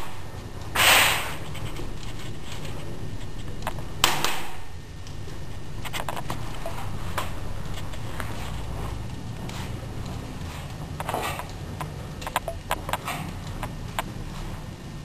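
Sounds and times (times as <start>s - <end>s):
wood fire crackling: 0.0s - 15.0s
low rumble: 4.7s - 15.0s.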